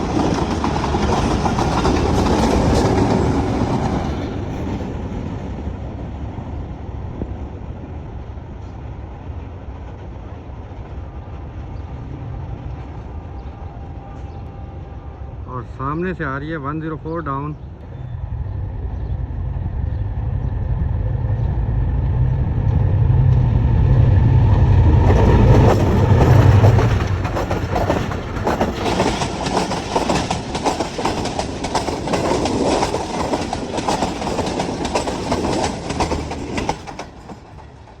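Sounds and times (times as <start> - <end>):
train wheels clattering: 0.0 - 5.3, 24.8 - 38.0
diesel locomotive engine rumble: 0.0 - 38.0.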